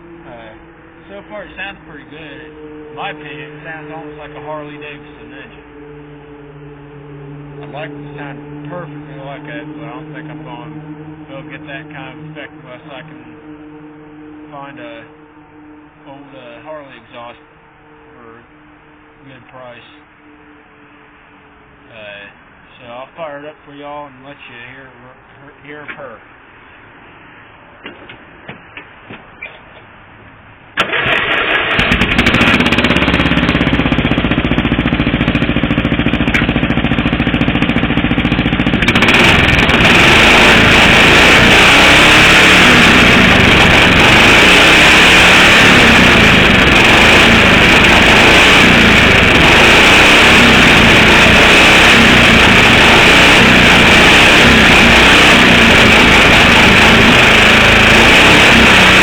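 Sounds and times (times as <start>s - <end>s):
lawn mower engine running: 0.0s - 17.8s, 30.8s - 59.0s.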